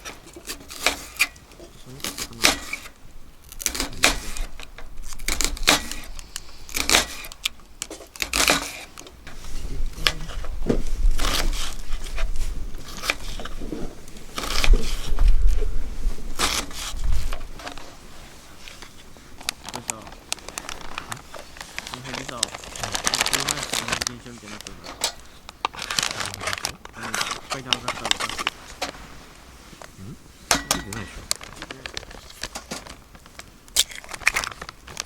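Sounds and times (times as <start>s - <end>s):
clicks and knocks of handling: 18.6s - 29.0s, 30.5s - 35.0s.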